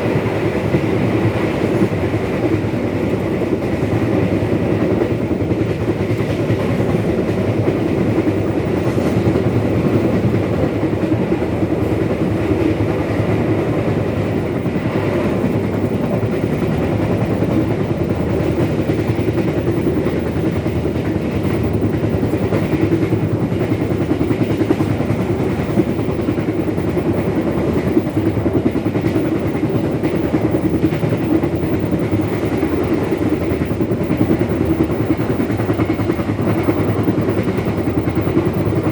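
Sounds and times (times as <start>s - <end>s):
train rumbling along track: 0.0s - 38.9s.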